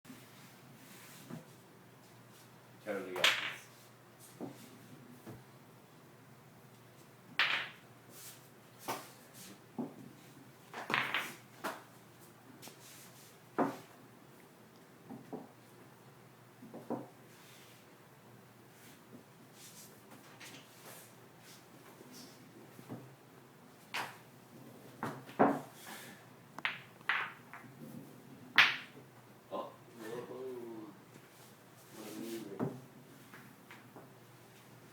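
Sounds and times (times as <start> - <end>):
pool balls clacking: 3.1 - 3.6, 7.4 - 7.8, 10.7 - 11.9, 26.6 - 29.1.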